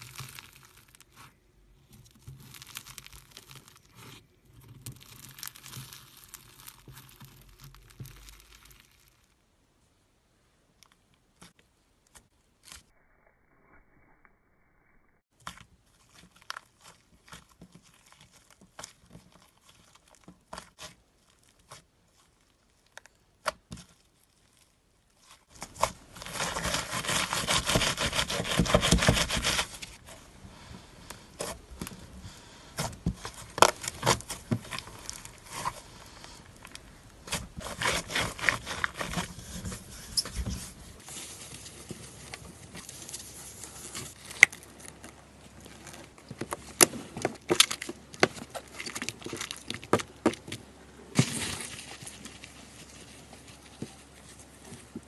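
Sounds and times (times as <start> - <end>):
slime crackling and popping: 0.0 - 9.4.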